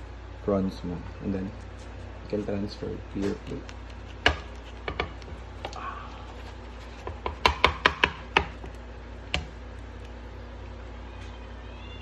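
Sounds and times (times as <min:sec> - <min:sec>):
utensil knocking on cooking pan: 0:04.2 - 0:05.4, 0:07.0 - 0:08.7.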